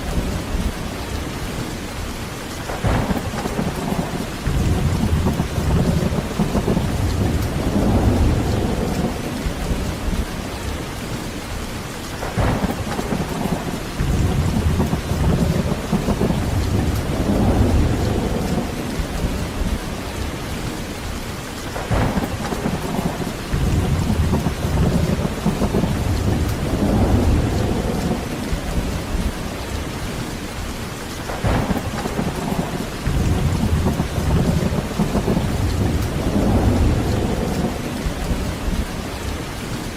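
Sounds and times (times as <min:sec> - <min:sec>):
heavy rain: 0:00.0 - 0:39.9
rolling thunder: 0:02.7 - 0:10.9, 0:12.2 - 0:20.7, 0:21.6 - 0:39.7.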